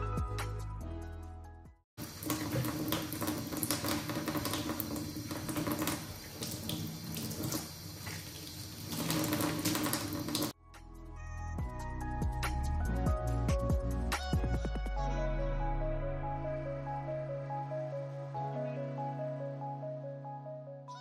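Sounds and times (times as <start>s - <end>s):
background music: 0.0s - 1.8s, 10.6s - 21.0s
sink being scrubbed: 2.0s - 10.6s
tap water splashing into sink: 2.0s - 10.6s.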